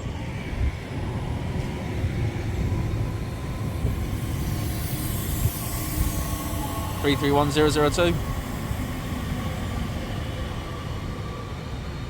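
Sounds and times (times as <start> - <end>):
faint train whine: 0.0 - 12.0
train rumble: 0.0 - 12.0
train hiss: 1.8 - 11.6.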